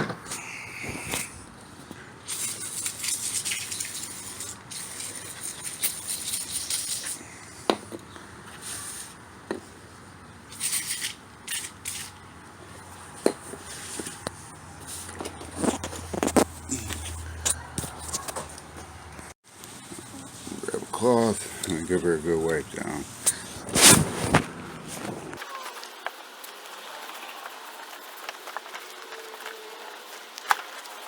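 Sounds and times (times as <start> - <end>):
rubbing: 23.3 - 25.9.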